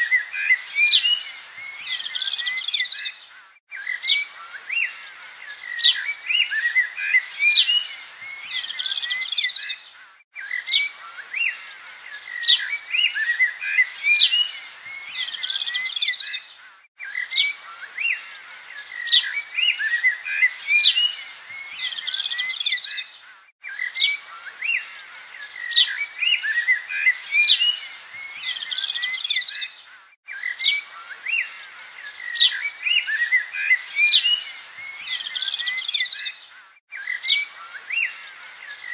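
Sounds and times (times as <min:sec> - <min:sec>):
birds chirping and whistling: 0:00.0 - 0:38.9.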